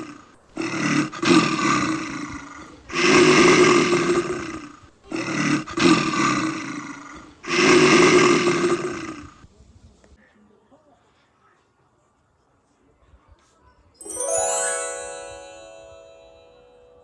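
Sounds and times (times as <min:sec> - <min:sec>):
loud monster roar: 0:00.0 - 0:09.4.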